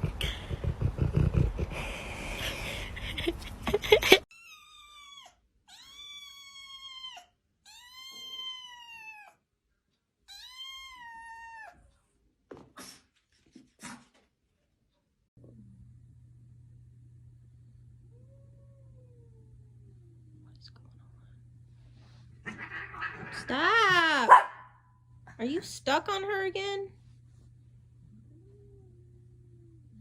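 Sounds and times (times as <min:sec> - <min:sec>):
cat meowing: 0:04.4 - 0:09.4, 0:10.3 - 0:11.8, 0:22.5 - 0:23.9.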